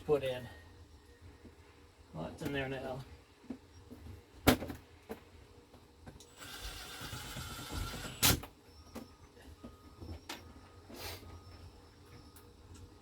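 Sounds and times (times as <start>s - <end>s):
cordless drill driving screw: 6.4s - 8.4s.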